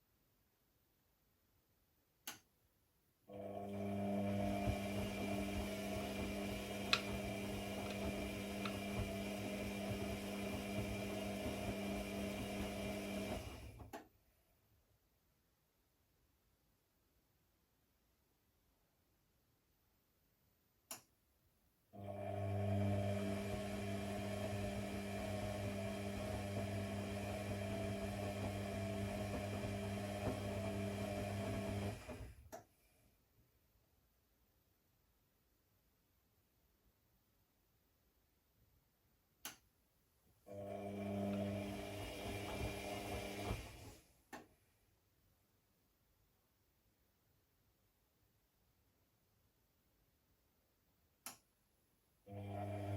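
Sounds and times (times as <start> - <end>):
click: 2.2 - 2.5, 6.9 - 7.1, 13.8 - 14.1, 20.9 - 21.1, 32.5 - 32.7, 39.4 - 39.7, 51.2 - 51.5
electric motor humming: 4.1 - 13.7, 22.2 - 32.3.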